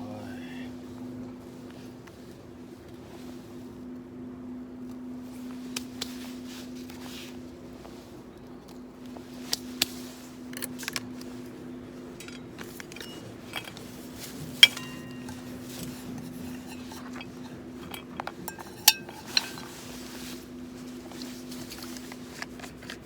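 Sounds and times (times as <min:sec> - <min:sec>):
steady low hum: 0:00.0 - 0:23.0
metal cookware clinking: 0:12.2 - 0:19.9.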